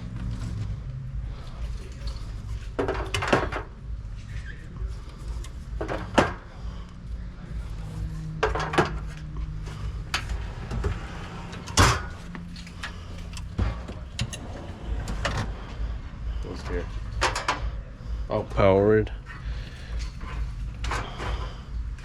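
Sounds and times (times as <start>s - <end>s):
steady low hum: 0.0s - 22.0s
products knocking and clattering: 2.8s - 3.7s, 5.7s - 6.5s, 8.3s - 9.3s.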